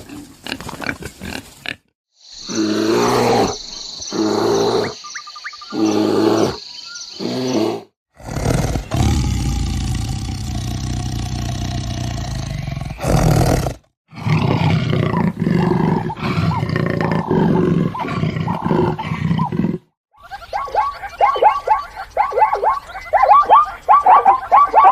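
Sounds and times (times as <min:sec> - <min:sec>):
long low animal call: 0:07.2 - 0:19.8.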